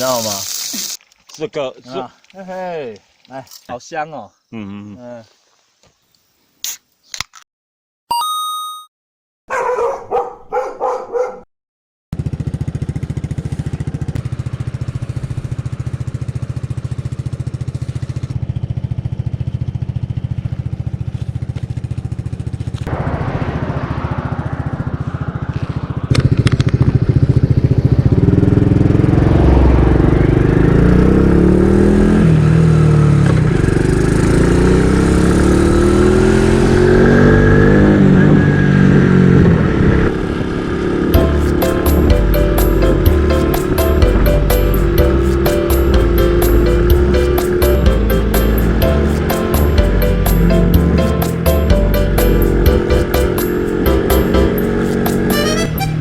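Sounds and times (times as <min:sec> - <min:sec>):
vehicle engine running: 0:12.2 - 0:36.6, 0:40.1 - 0:56.0.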